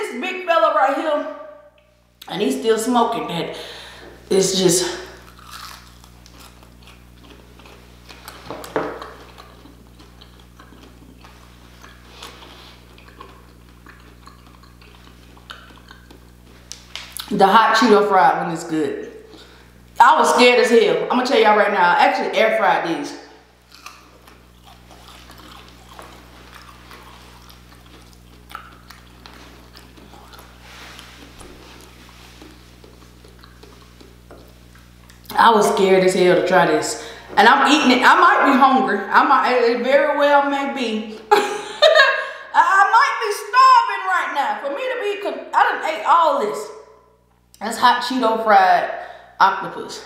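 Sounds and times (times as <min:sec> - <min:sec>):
low electrical hum: 0:00.0 - 0:50.0
chewing crunches: 0:04.8 - 0:17.3, 0:23.5 - 0:35.4
wet mouth clicks: 0:11.8 - 0:17.3, 0:27.5 - 0:30.6, 0:32.3 - 0:35.3.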